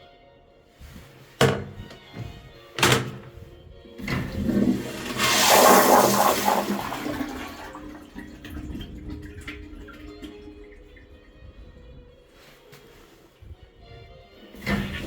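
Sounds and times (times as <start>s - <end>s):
toilet flushing: 0.9s - 11.2s, 14.4s - 15.0s.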